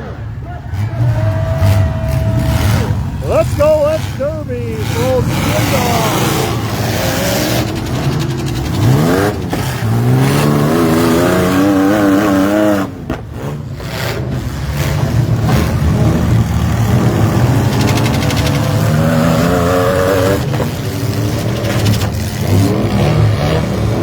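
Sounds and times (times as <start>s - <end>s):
engines revving hard: 0.0s - 24.0s.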